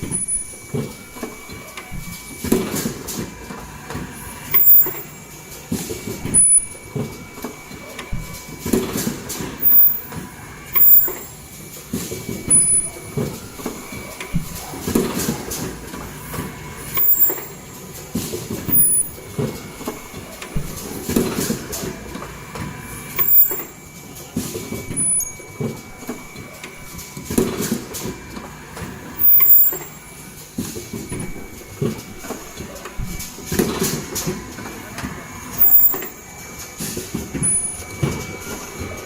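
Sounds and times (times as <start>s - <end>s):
machine clunking and rattling: 0.0s - 39.0s
machine clicks: 16.9s - 17.6s, 23.2s - 23.7s, 35.6s - 36.2s.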